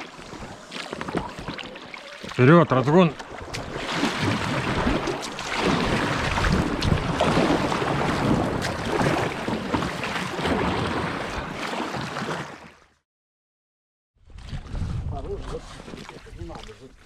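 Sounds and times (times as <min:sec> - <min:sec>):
river water rushing and splashing: 0:00.0 - 0:12.6
wind buffeting microphone: 0:14.4 - 0:15.7.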